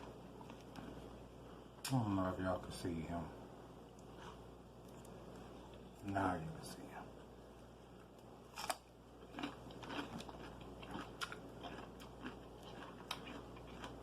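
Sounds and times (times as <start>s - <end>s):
chewing with crunches: 0.0s - 1.2s, 8.0s - 14.0s.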